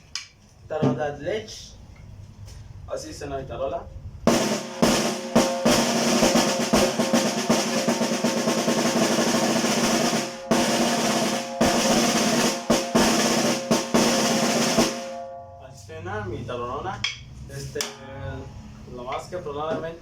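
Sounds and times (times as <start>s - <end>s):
snare drum rolls: 4.3s - 15.3s.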